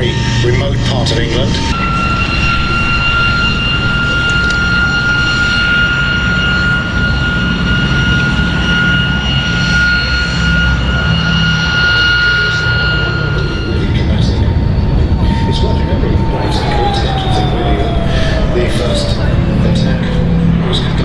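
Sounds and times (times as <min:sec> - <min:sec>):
high-pitched engine whine: 0:00.0 - 0:21.0
radial piston engines droning: 0:00.0 - 0:21.0.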